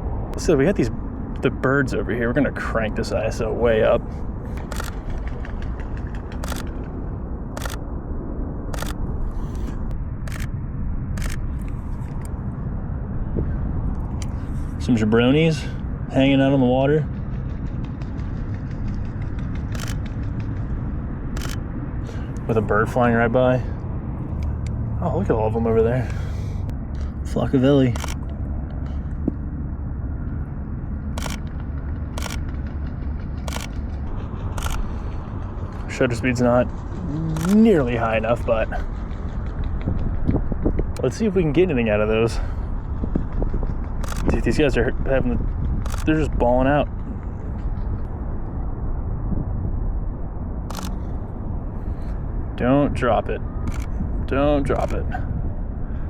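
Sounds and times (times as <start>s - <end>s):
steady low rumble: 0.0s - 56.0s
camera shutter clicks: 4.5s - 5.2s, 6.4s - 6.7s, 7.6s - 7.8s, 8.8s - 9.6s, 10.3s - 10.5s, 11.2s - 12.3s, 19.8s - 20.1s, 21.4s - 21.6s, 28.0s - 28.3s, 31.2s - 31.5s, 32.2s - 32.4s, 33.5s - 33.7s, 34.6s - 34.9s, 37.4s - 37.6s, 44.0s - 44.4s, 45.9s - 46.1s, 50.7s - 51.0s, 53.7s - 53.9s.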